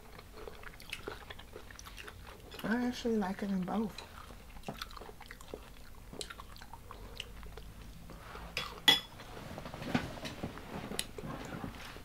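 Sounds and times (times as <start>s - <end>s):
chewing and biting crunchy food: 0.0s - 8.9s.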